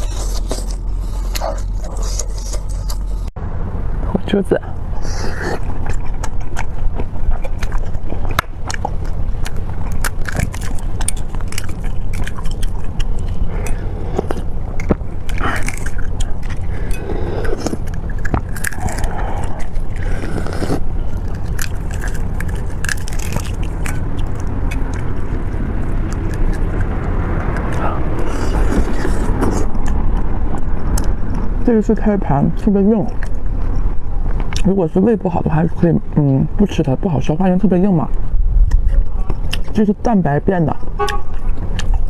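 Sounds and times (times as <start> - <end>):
crunchy chewing: 0.0 - 3.3, 4.9 - 31.6, 38.6 - 39.9, 41.0 - 42.0
steady low hum: 0.0 - 42.0
wet mouth noises: 5.0 - 31.5, 38.6 - 39.8, 41.0 - 42.0.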